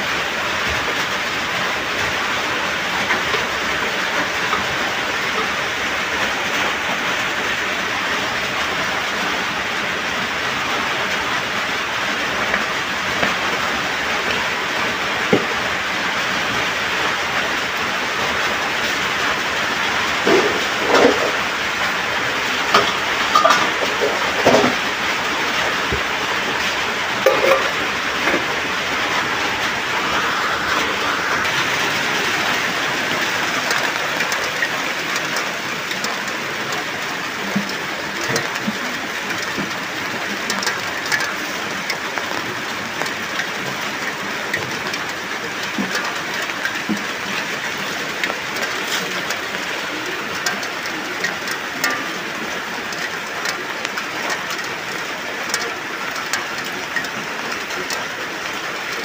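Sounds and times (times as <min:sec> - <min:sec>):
steady rain hiss: 0:00.0 - 0:59.0
water drips: 0:11.1 - 0:59.0
metal clank: 0:22.8 - 0:24.8, 0:27.2 - 0:27.8.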